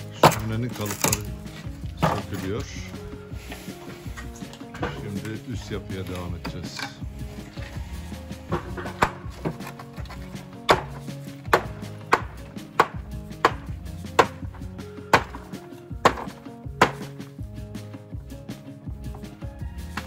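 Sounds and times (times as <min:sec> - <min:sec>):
background music: 0:00.0 - 0:20.0
hand tool knocking hard material: 0:00.1 - 0:01.3, 0:01.9 - 0:02.9, 0:04.7 - 0:07.0, 0:08.4 - 0:17.2.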